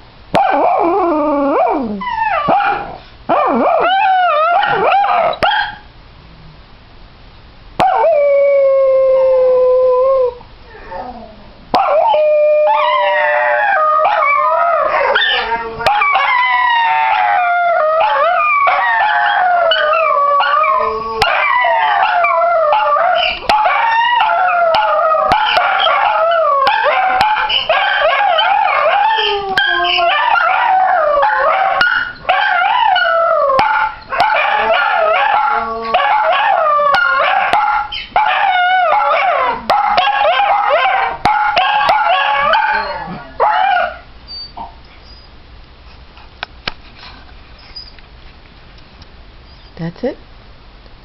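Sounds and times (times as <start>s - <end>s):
dogs howling together: 0.4s - 5.5s, 7.8s - 44.0s.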